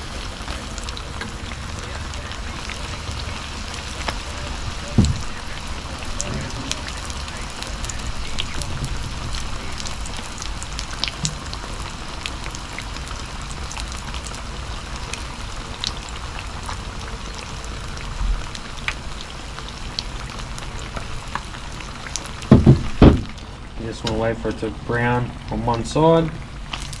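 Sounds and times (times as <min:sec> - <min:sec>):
fish deep-frying in hot oil: 0:00.0 - 0:27.0
sharp loud knock: 0:22.5 - 0:23.3.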